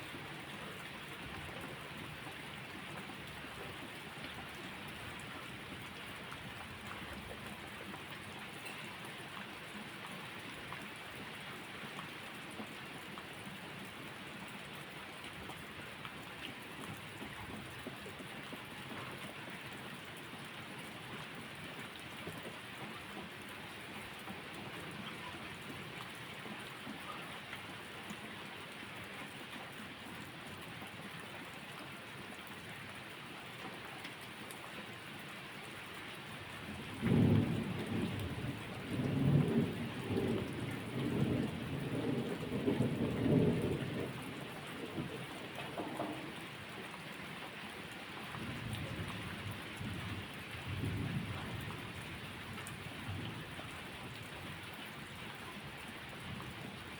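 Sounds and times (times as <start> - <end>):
steady rain falling: 0.0 - 56.9
thunder rumbling: 36.9 - 46.4.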